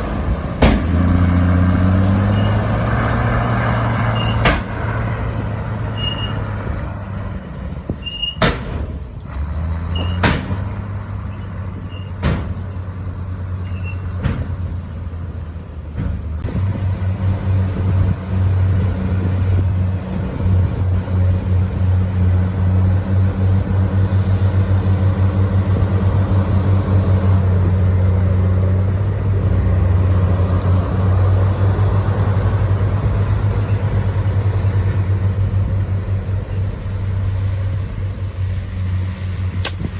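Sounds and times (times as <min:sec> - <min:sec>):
bulldozer diesel engine: 0:00.0 - 0:39.9
sharp metallic knocks: 0:04.0 - 0:04.9, 0:08.4 - 0:09.1.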